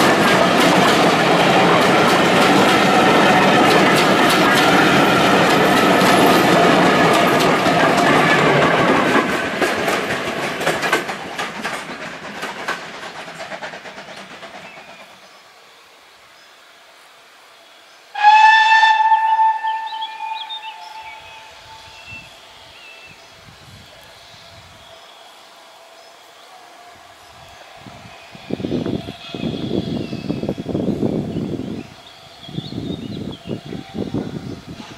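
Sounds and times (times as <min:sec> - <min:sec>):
train wheels clicking over rail joints: 0:00.0 - 0:15.3.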